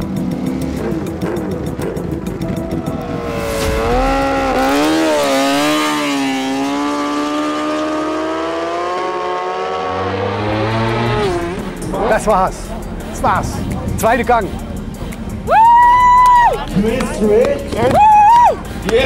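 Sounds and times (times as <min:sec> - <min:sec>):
motorbike engines revving hard: 0:00.0 - 0:12.3.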